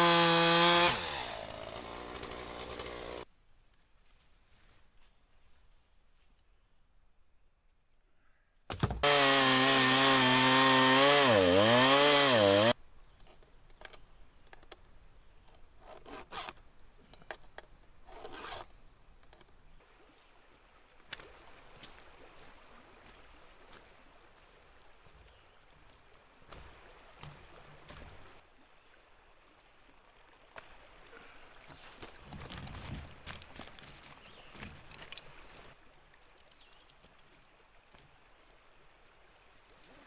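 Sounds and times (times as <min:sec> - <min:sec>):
chainsaw cutting: 0:00.0 - 0:03.3, 0:08.7 - 0:12.8, 0:15.8 - 0:16.6, 0:18.1 - 0:18.6
faint rustles and knocks: 0:31.6 - 0:38.2.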